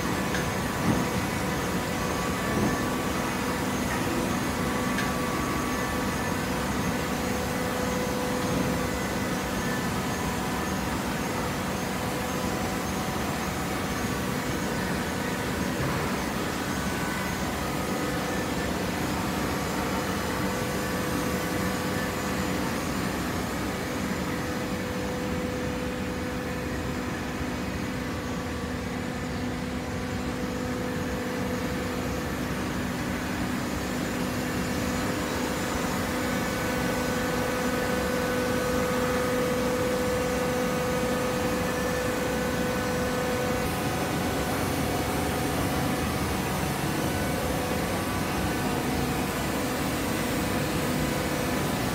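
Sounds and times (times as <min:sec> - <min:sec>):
hydraulic baler humming: 0:27.4 - 0:51.9.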